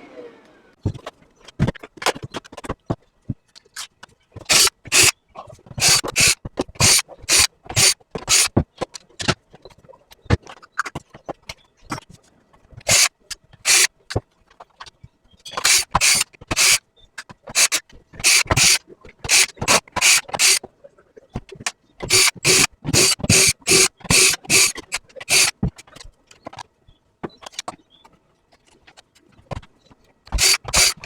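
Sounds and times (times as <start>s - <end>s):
brush scraping a filter: 17.5s - 20.6s, 22.0s - 25.5s, 30.4s - 31.0s.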